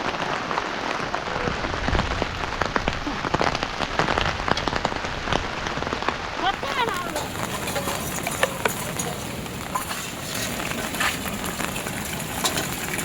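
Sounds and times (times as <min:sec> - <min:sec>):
steady rain: 0:00.0 - 0:13.0
drops tapping hard surfaces: 0:06.9 - 0:13.0.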